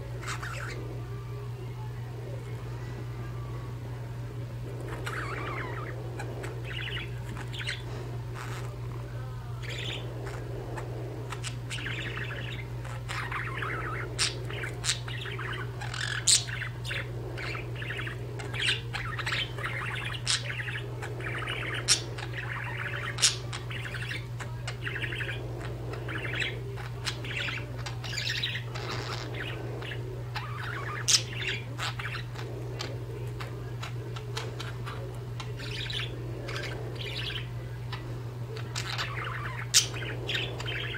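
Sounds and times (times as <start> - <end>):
budgerigars chattering and chirping: 0.0 - 0.9, 4.7 - 40.9.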